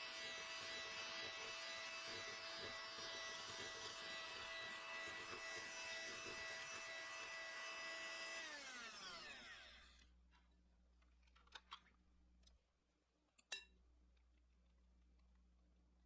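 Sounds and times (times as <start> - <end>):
electric mixer running: 0.0 - 10.0
motor spinning down: 7.8 - 10.0.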